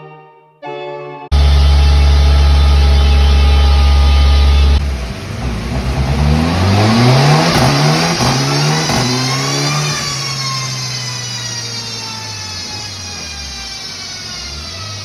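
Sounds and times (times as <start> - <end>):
car engine revving on dyno: 1.3 - 15.0
loud low drone: 1.3 - 15.0.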